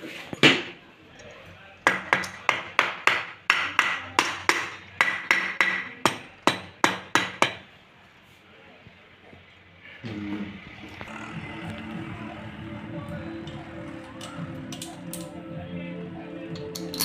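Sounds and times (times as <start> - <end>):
hammer tapping on metal: 1.9 - 7.6.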